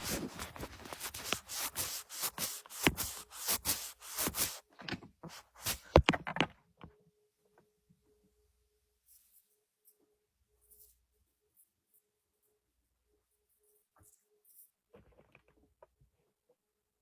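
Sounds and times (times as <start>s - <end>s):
rubbing and scraping: 0.0s - 6.1s.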